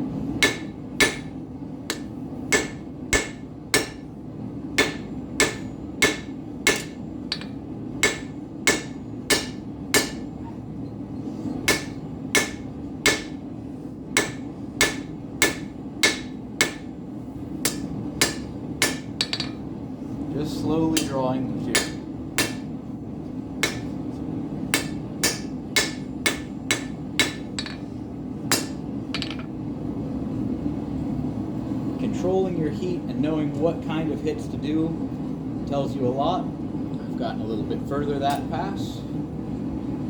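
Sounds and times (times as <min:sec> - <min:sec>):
forge running: 0:00.0 - 0:10.4
hammer striking steel on anvil: 0:00.4 - 0:04.1, 0:04.8 - 0:10.4, 0:11.6 - 0:13.4, 0:14.2 - 0:16.9, 0:17.6 - 0:19.6, 0:21.0 - 0:22.7, 0:23.6 - 0:24.0, 0:24.7 - 0:27.9, 0:28.5 - 0:29.5.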